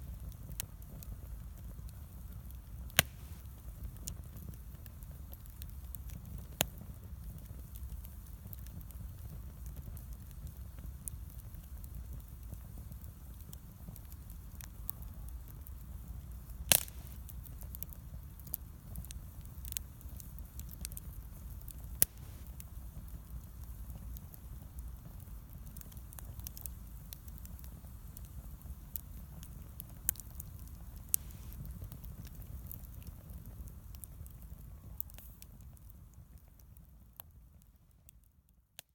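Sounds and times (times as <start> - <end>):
wood bonfire crackling: 0.0 - 38.9
loud sharp pops: 3.0 - 3.4, 16.7 - 17.2.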